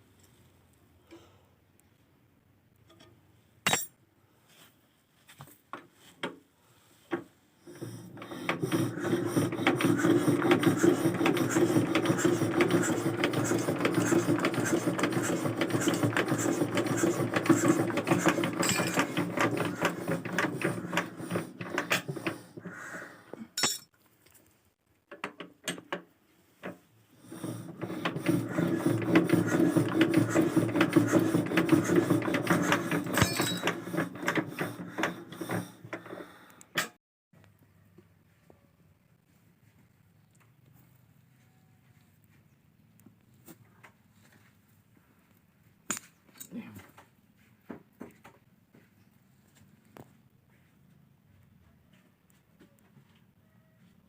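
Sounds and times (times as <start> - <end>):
scattered clicks and knocks: 7.1 - 22.4, 25.1 - 26.8, 27.6 - 37.0
small diesel engine clattering: 7.7 - 22.5, 27.3 - 36.3.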